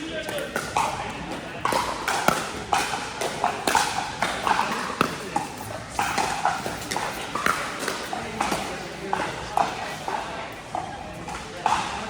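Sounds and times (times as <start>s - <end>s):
paddles striking plastic ball: 0.4s - 9.8s.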